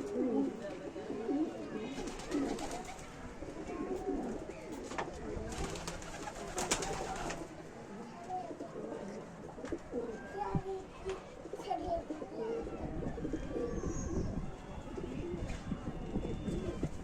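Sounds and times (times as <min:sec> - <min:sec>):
pigeons cooing: 0:11.5 - 0:15.5.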